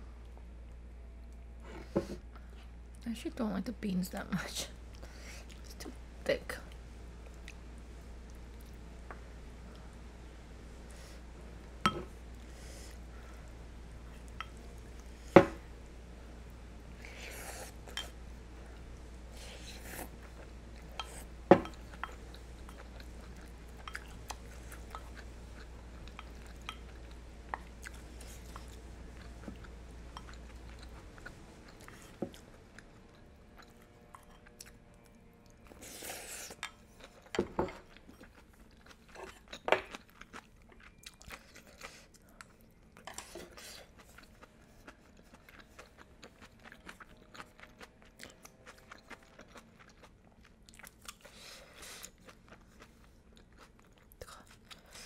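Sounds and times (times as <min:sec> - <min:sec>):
low background hum: 0:00.0 - 0:55.0
close chewing and biting: 0:21.9 - 0:55.0.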